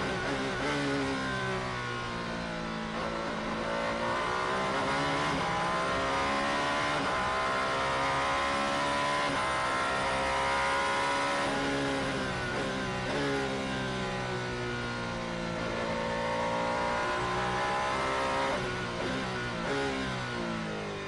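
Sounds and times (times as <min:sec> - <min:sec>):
race car engine accelerating: 0:02.8 - 0:14.2, 0:15.4 - 0:20.7.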